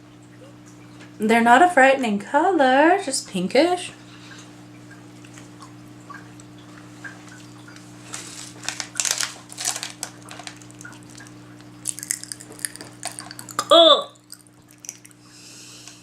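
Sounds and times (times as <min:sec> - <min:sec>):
person crunching hard candy: 0:08.7 - 0:15.2.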